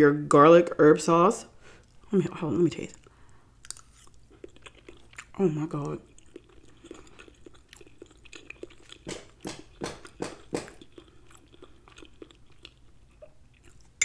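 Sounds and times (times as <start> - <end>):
wet chewing clicks: 2.8 - 14.0.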